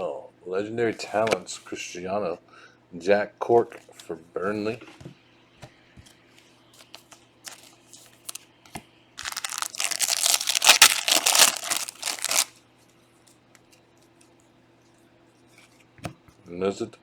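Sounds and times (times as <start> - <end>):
foil wrapper crinkling and tearing: 7.5 - 8.4, 9.2 - 12.5.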